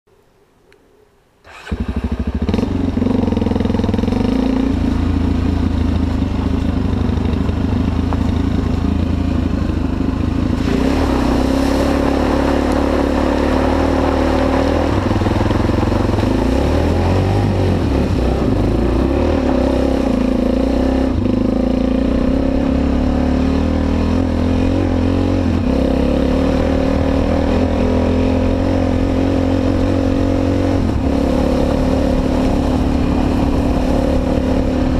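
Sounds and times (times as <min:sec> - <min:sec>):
motorcycle engine revving: 0:01.4 - 0:34.9.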